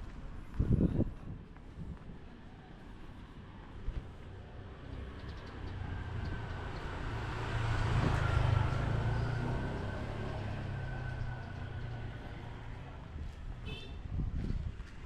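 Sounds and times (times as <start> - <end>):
vehicle driving past: 5.6 - 13.1.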